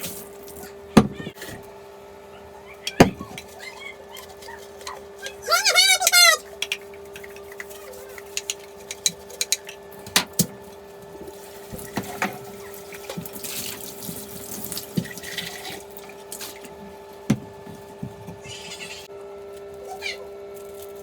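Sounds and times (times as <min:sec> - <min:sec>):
running water: 0:04.3 - 0:10.0, 0:11.2 - 0:18.7.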